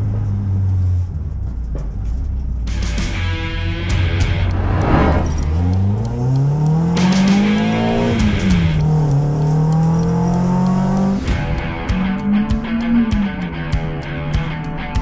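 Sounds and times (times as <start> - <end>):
car engine revving: 3.6 - 13.5.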